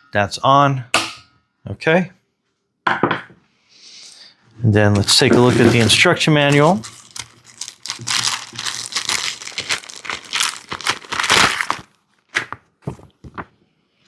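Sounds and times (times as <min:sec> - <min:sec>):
paper wrapping crinkling and rustling: 0:05.1 - 0:13.5.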